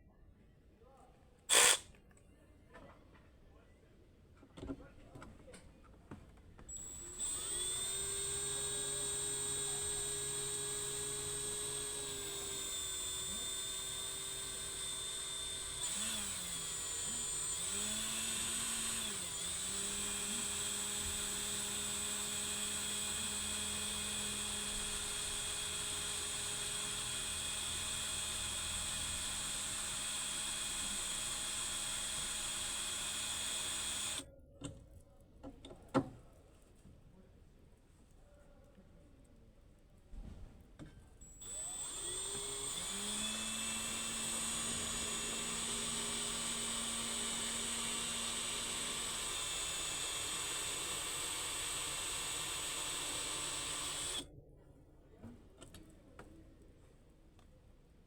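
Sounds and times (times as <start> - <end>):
motor high-pitched whine: 1.5 - 1.8, 6.7 - 34.2, 41.2 - 54.3.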